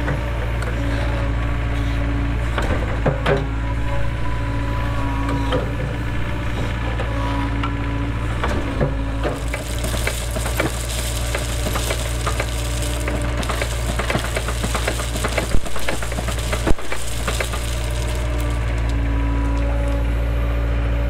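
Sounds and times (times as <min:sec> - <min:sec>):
excavator diesel engine running: 0:00.0 - 0:21.0
stone and gravel scraping: 0:09.2 - 0:20.0
gritty hiss: 0:09.3 - 0:19.7.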